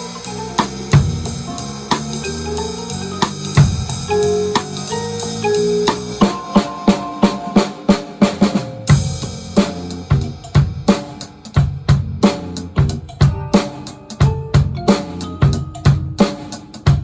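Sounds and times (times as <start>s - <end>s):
drum kit playing a steady beat: 0.0s - 17.0s
recorded band accompaniment: 0.0s - 17.0s.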